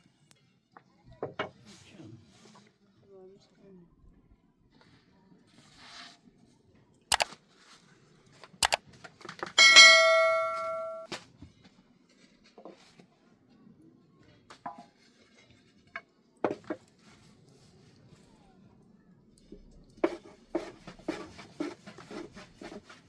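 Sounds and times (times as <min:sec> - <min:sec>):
metal cookware knocks and clinks: 0:09.6 - 0:11.1
ringing metal strike: 0:09.6 - 0:11.1.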